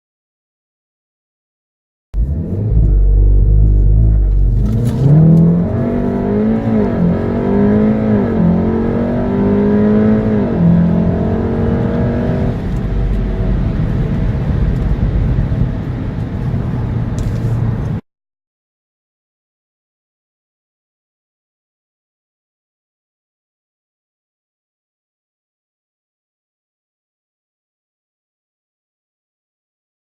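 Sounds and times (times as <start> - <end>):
car engine accelerating with upshifts: 2.2 - 18.0
road and wind noise: 2.2 - 18.0.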